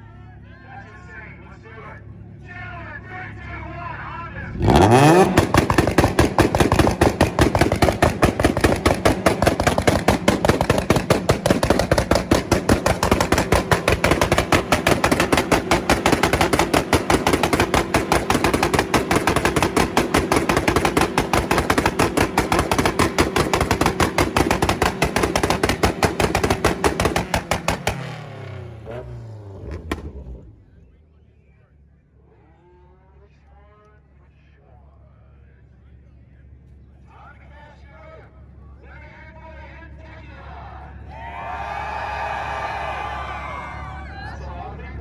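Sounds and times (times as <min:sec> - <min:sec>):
car engine on rev limiter: 0:04.4 - 0:31.1
exhaust banging and popping: 0:04.6 - 0:30.8.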